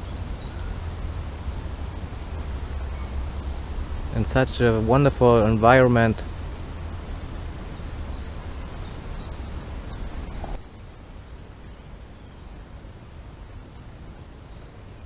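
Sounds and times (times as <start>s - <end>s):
bird chirping: 0.0s - 10.6s
wind rumble on microphone: 0.0s - 15.0s.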